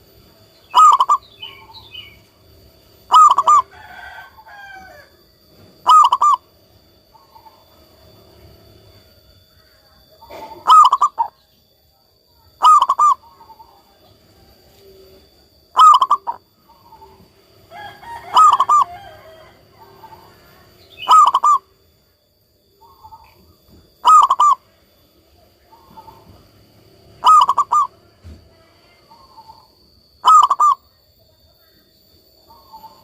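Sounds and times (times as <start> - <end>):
dove cooing: 0.0 - 2.2, 3.0 - 5.0, 5.6 - 6.5, 10.0 - 11.4, 12.5 - 21.8, 22.8 - 24.8, 25.5 - 30.9, 32.5 - 33.0.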